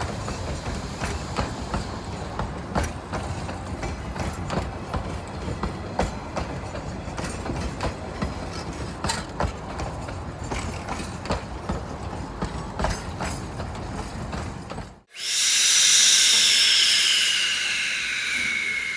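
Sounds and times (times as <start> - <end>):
train wheels clicking over rail joints: 0.0 - 15.0
low train rumble: 0.0 - 18.9.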